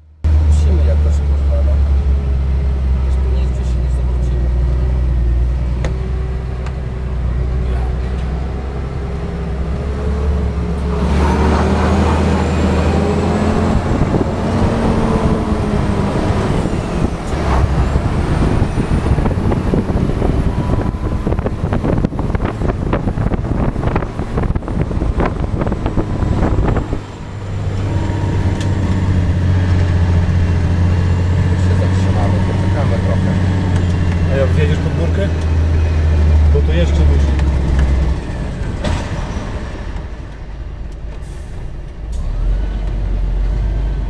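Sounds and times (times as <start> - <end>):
truck diesel engine hum: 0.0 - 44.0
rattles and knocks: 37.3 - 41.2.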